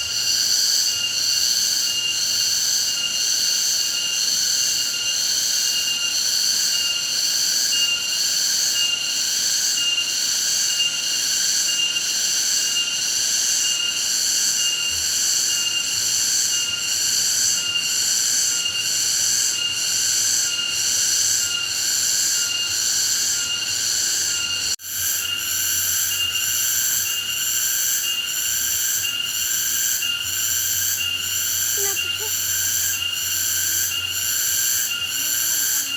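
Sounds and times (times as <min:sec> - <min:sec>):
insects buzzing shrilly: 0:00.0 - 0:35.9.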